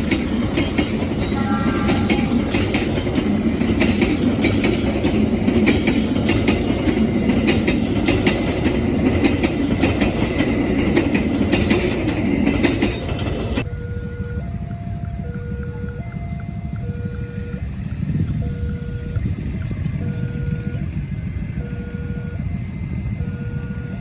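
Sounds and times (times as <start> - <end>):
wheels clicking over rail joints: 0.0 - 13.7
train wheels rumbling on rails: 0.0 - 24.0.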